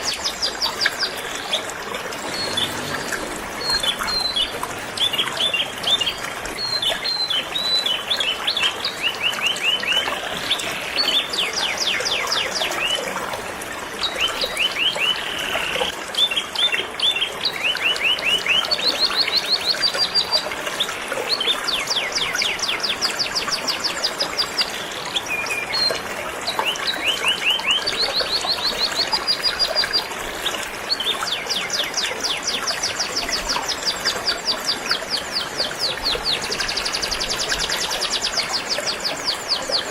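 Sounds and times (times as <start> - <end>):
canary singing in fast trills: 0.0 - 13.2, 21.3 - 39.9
flowing river water: 0.0 - 39.9.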